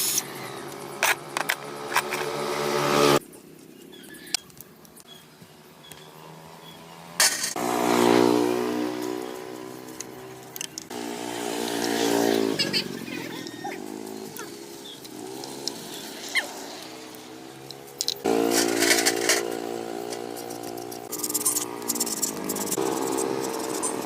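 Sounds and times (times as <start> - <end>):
engine running: 5.9 - 24.0.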